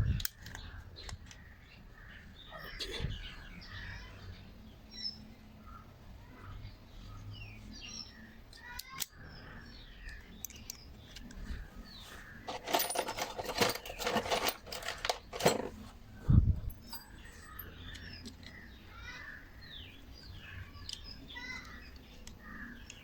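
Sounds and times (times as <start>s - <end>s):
birds chirping faintly: 0.0s - 23.0s
metal parts clicking and scraping: 0.2s - 1.4s, 10.1s - 16.0s, 16.6s - 18.6s.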